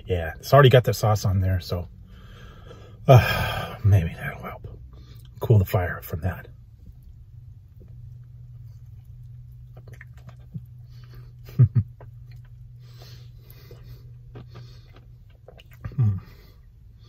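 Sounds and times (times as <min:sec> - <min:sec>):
steady low hum: 0:00.0 - 0:17.0
person chewing food: 0:06.8 - 0:17.0.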